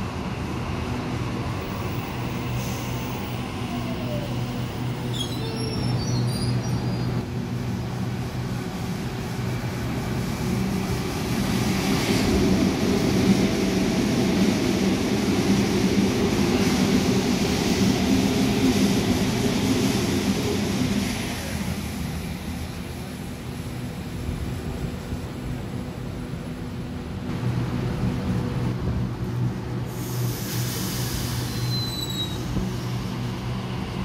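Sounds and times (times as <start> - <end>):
electric train passing: 32.4 - 34.0.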